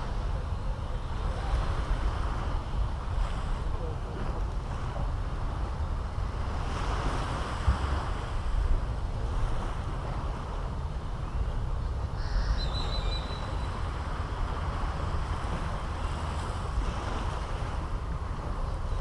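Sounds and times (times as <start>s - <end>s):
surf washing onto beach: 0.0s - 11.2s
wind rumbling on microphone: 0.0s - 19.0s
bird chirp: 12.2s - 13.9s.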